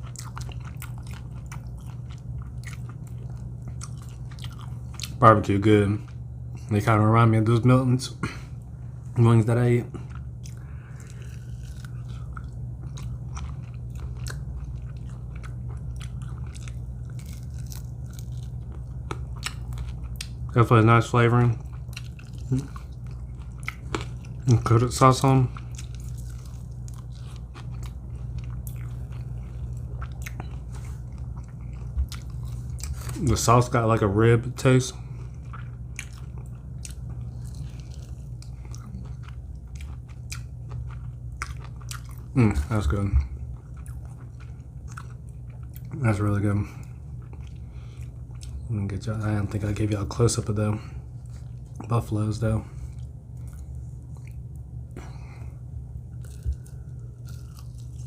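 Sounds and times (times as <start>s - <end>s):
person chewing and biting: 0.0s - 5.2s, 9.9s - 20.5s, 21.4s - 33.3s, 35.0s - 46.0s, 46.8s - 48.7s, 52.8s - 58.0s
steady low hum: 0.0s - 58.0s.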